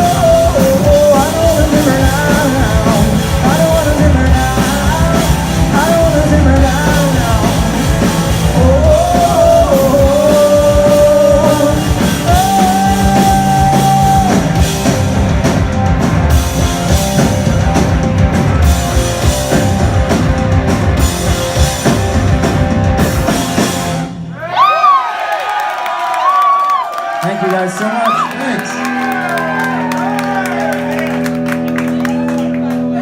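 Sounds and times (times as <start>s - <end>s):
live rock band playing: 0.0s - 24.4s, 28.1s - 33.0s
crowd cheering and whooping: 24.4s - 33.0s.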